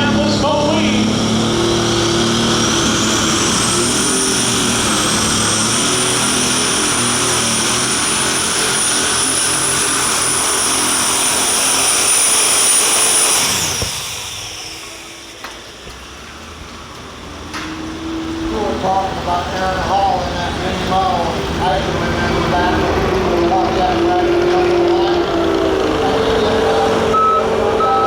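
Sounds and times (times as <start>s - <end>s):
high turbocharger whine: 0.0s - 28.0s
pulling tractor engine roaring: 0.0s - 28.0s.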